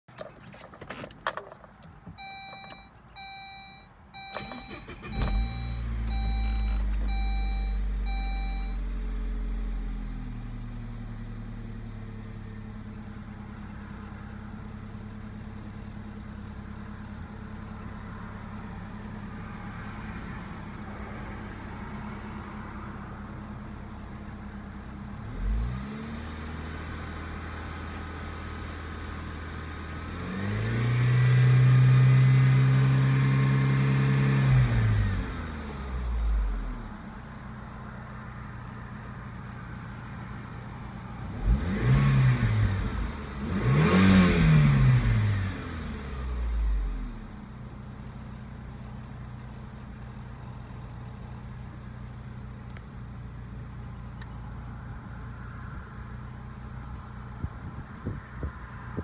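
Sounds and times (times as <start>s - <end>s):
car engine cranking and starting: 0.1s - 59.0s
car engine idling: 0.2s - 25.6s, 35.0s - 42.0s, 45.0s - 59.0s
engine throttle blip: 2.2s - 8.8s
dashboard warning chime: 2.2s - 8.9s.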